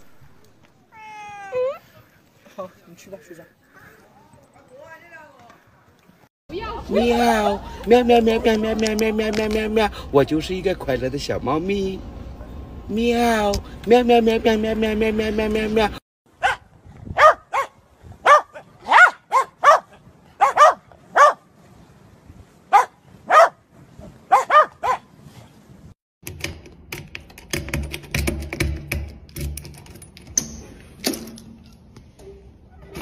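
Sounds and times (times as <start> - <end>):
dog yipping: 16.4 - 16.6, 17.2 - 21.4, 22.7 - 23.6, 24.3 - 25.0
sharp clicks and clatter: 26.2 - 30.6.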